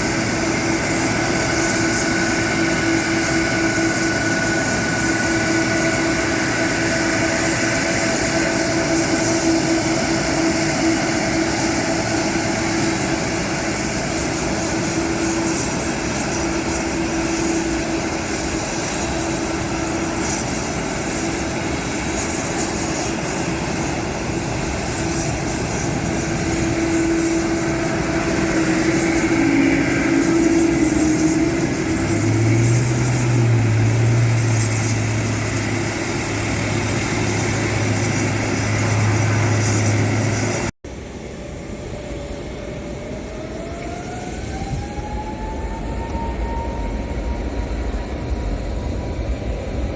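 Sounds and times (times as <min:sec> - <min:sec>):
jet engines running: 0:00.0 - 0:49.9
deeper hum: 0:23.2 - 0:40.7.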